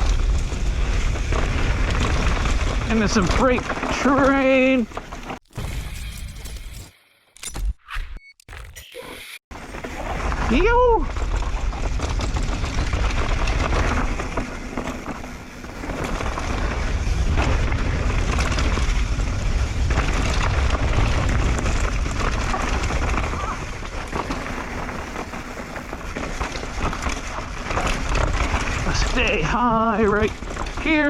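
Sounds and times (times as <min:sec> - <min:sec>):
mountain bike rattling over dirt: 0:00.0 - 0:06.0, 0:09.5 - 0:31.0.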